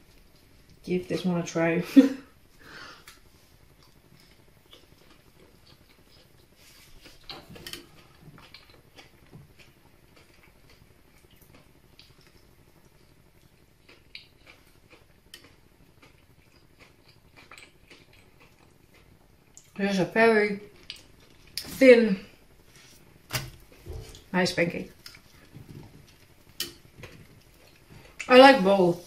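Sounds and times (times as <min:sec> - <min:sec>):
person chewing: 0:03.1 - 0:19.8, 0:25.0 - 0:28.3.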